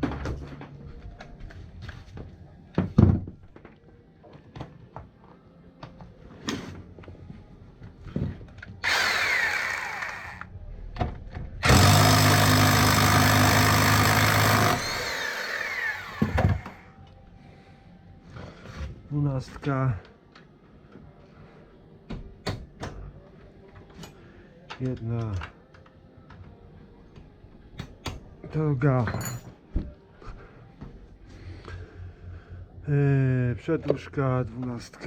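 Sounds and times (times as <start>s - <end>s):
handheld power tool running: 8.8s - 10.5s, 11.6s - 16.8s
metal tools clinking: 29.0s - 29.6s.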